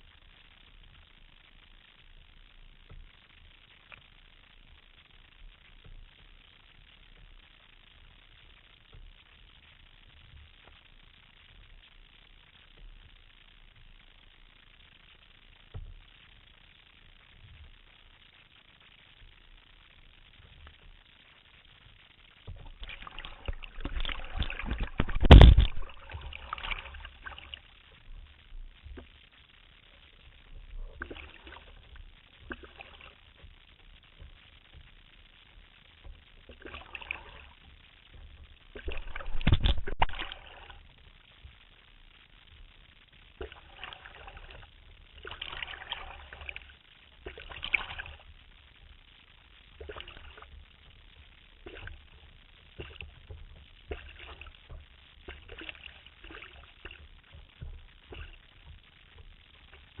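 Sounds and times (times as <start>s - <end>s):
water splashing and lapping: 19.0s - 60.0s.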